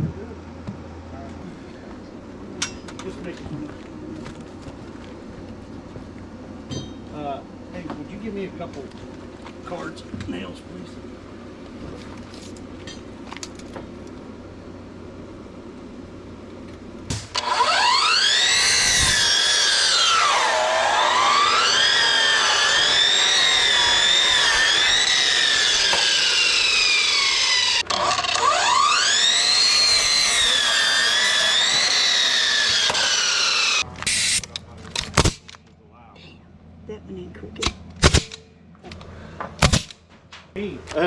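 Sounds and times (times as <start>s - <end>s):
electric saw cutting wood: 17.1s - 34.2s.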